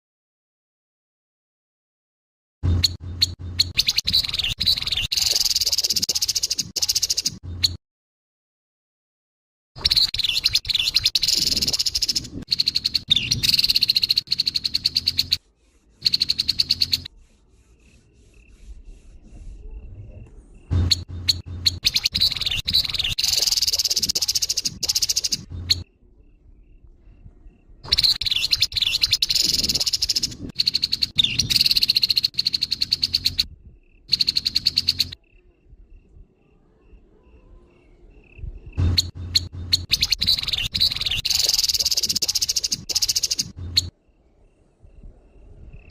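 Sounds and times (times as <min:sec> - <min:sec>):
bird rattling chatter calls: 0:02.8 - 0:07.4, 0:09.9 - 0:15.4, 0:16.0 - 0:17.1, 0:20.8 - 0:25.8, 0:27.9 - 0:33.4, 0:34.1 - 0:35.2, 0:38.9 - 0:43.9
bird rattling chatter: 0:20.8 - 0:25.8, 0:38.9 - 0:43.6.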